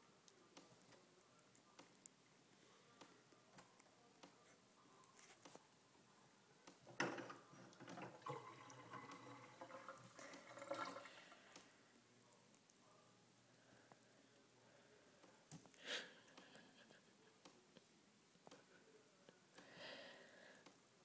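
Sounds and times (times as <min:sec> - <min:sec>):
water splashing into bathtub: 0:07.0 - 0:11.4
faint water drips: 0:07.1 - 0:11.8.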